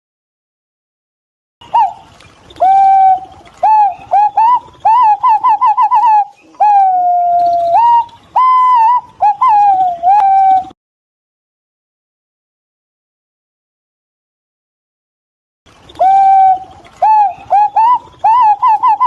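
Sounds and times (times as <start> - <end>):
pigeon whistling calls: 1.6 - 10.8, 15.9 - 19.0.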